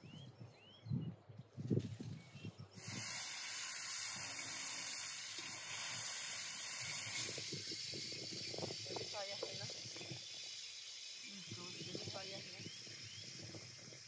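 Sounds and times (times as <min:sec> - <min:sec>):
offal sizzling in a pan: 0:02.8 - 0:14.0.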